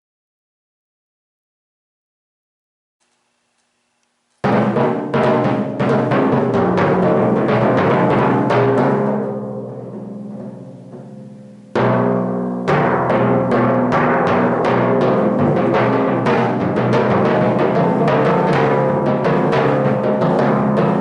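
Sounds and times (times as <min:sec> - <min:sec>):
timpani strokes: 0:04.4 - 0:21.0.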